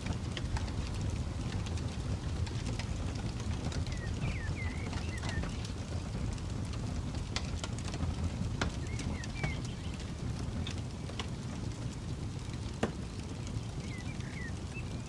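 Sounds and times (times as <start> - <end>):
campfire wood crackling: 0.0 - 15.0
bird chirping: 3.9 - 5.5, 13.8 - 15.0.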